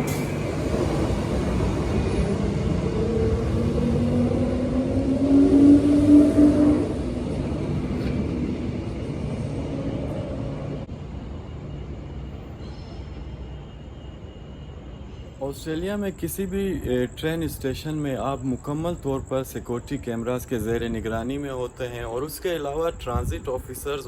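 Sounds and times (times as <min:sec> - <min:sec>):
electric train rumble: 0:00.0 - 0:24.0.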